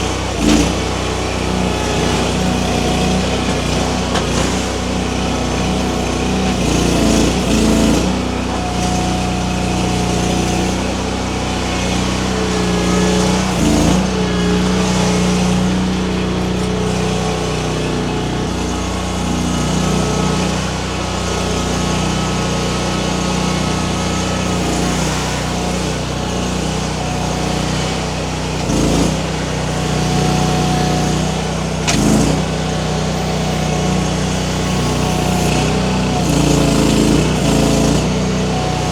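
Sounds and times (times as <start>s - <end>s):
skid steer engine running: 0.0s - 38.9s
clunks: 0.4s - 6.4s, 28.5s - 38.9s.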